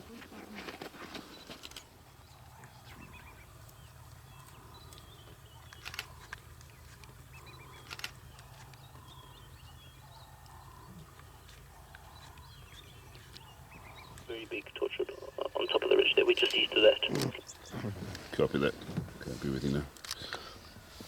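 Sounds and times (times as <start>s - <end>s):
birds chirping: 2.3s - 20.9s
low steady hum: 14.2s - 18.2s.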